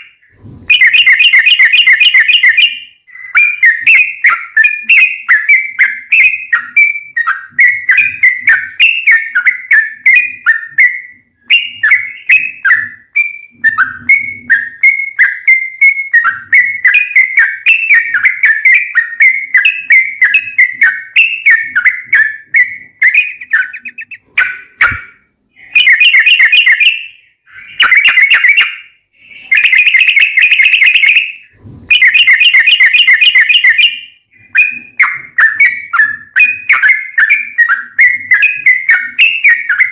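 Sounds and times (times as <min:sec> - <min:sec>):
bird chattering whistled song: 0:00.0 - 0:39.9
bird rolling trills: 0:06.6 - 0:25.0.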